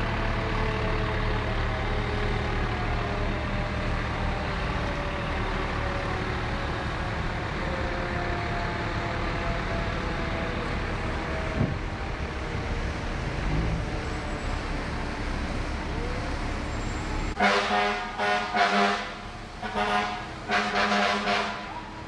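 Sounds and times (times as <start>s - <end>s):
vehicle engines idling: 0.0s - 22.0s
air horn blasts: 17.4s - 21.8s.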